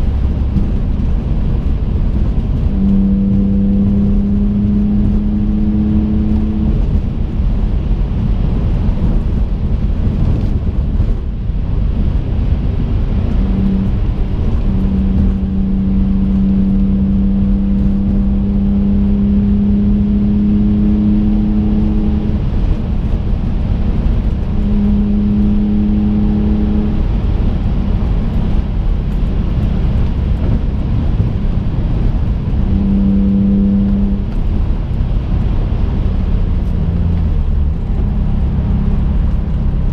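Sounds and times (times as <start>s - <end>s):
constant-pitch engine drone: 0.0s - 39.9s
engine and road rumble: 0.0s - 39.9s.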